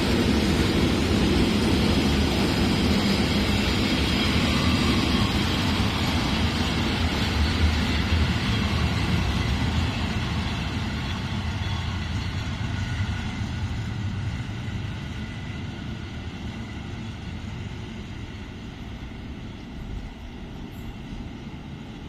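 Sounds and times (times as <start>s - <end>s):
train rumbling on rails: 0.0s - 22.0s.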